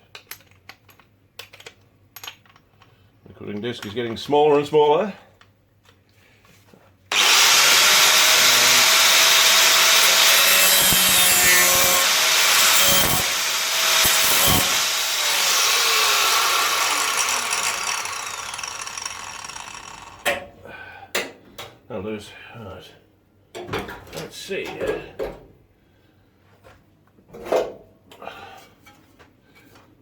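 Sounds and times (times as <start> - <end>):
angle grinder cutting sheet steel: 7.1 - 20.3.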